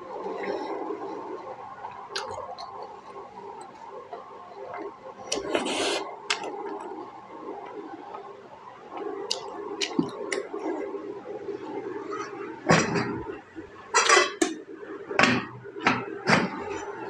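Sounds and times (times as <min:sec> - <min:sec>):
short slurp: 0:05.3 - 0:06.0.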